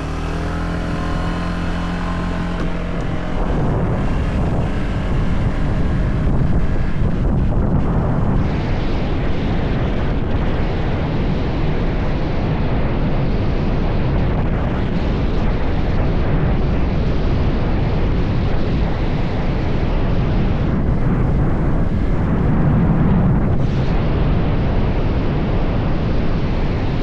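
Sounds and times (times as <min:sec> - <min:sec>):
motorcycle engine: 0:00.0 - 0:08.9
wind rush over microphone: 0:00.0 - 0:27.0.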